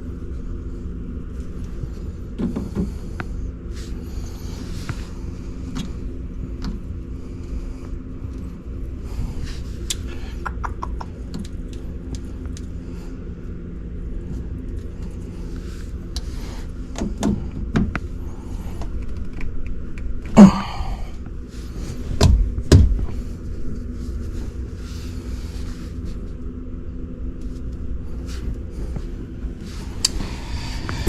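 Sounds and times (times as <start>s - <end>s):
low machine hum: 0.0s - 31.0s
heavy thumps: 22.2s - 23.2s.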